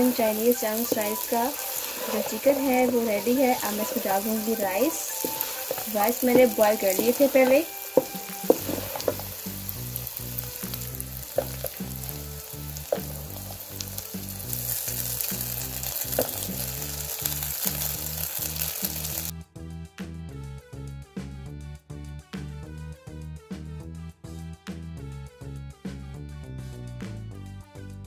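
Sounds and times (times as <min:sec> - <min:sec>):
spatula stirring: 0:00.0 - 0:19.0
food sizzling in a wok: 0:00.0 - 0:19.3
background music with steady beat: 0:00.0 - 0:28.0
spatula knocking against pan: 0:05.2 - 0:09.3.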